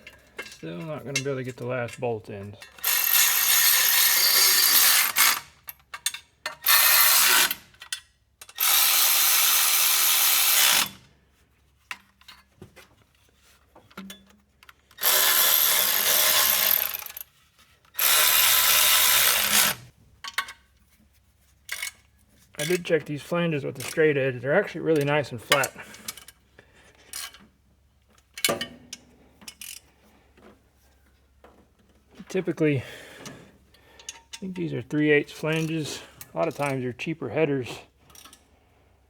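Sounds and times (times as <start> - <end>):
cordless power tool running: 18.0 - 19.8.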